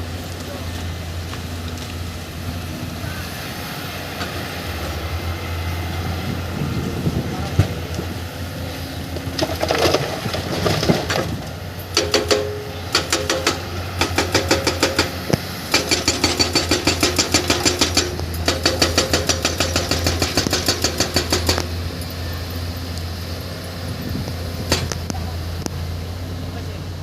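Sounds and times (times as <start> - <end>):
excavator diesel engine running: 0.0 - 27.0
rapid metallic clicking: 11.9 - 21.7.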